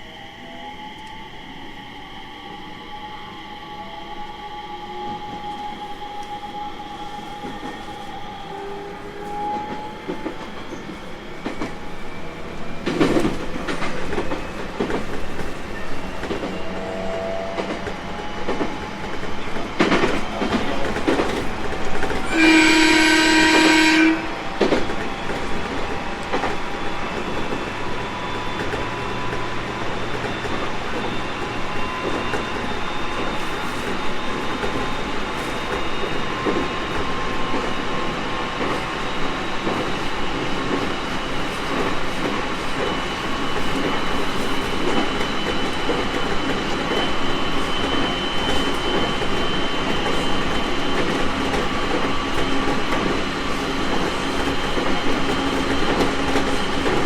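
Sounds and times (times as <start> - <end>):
train running noise: 0.0 - 57.0
rail-joint clacks: 12.6 - 37.8, 38.5 - 57.0
train horn blast: 22.2 - 24.4.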